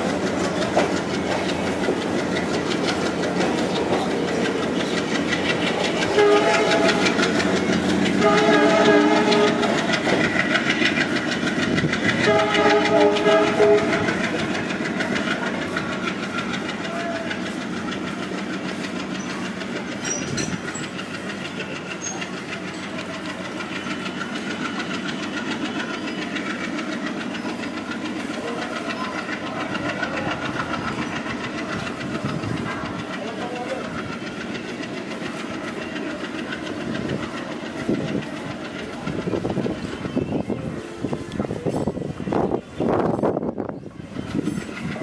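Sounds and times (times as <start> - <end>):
train pulling away: 0.0 - 45.0
wheels clattering over rail joints: 0.0 - 45.0
locomotive horn: 6.1 - 7.4, 8.1 - 9.8, 12.2 - 14.3.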